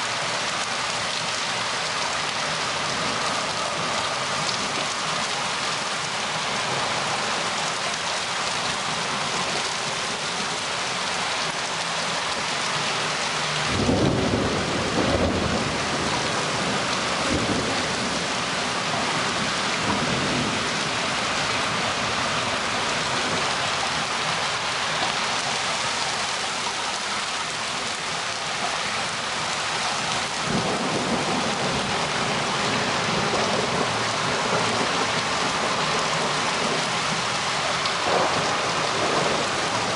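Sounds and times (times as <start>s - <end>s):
heavy rain: 0.0s - 39.9s
thunder rumbling: 13.6s - 23.6s, 30.4s - 37.3s, 37.9s - 39.9s.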